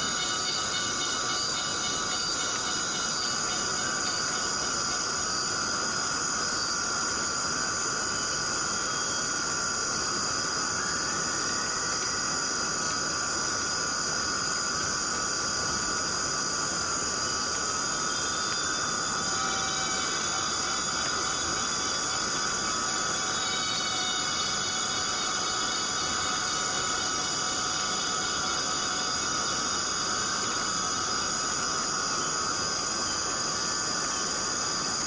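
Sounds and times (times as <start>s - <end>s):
insects buzzing: 0.0s - 35.0s
steady rain falling: 19.9s - 23.3s.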